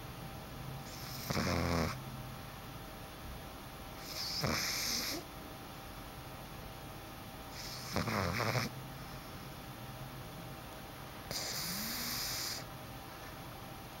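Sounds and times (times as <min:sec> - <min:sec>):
puppy snoring: 0:00.8 - 0:02.0, 0:04.0 - 0:05.3, 0:07.5 - 0:08.8, 0:11.2 - 0:12.7.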